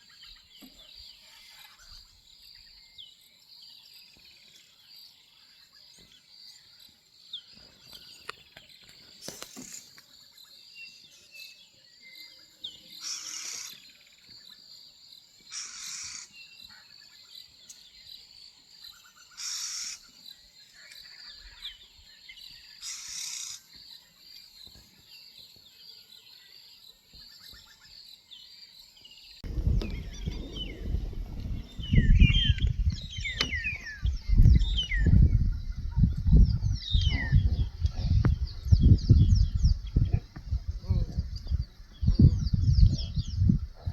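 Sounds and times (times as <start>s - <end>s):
bird chirps: 29.2s - 43.9s
loud low rumble: 29.4s - 43.9s.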